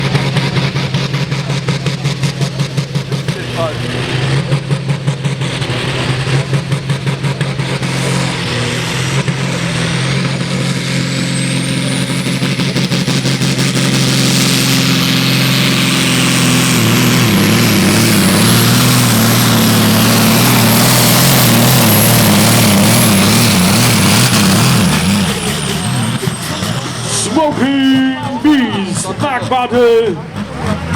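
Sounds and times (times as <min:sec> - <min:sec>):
tractor engine revving: 0:00.0 - 0:30.9.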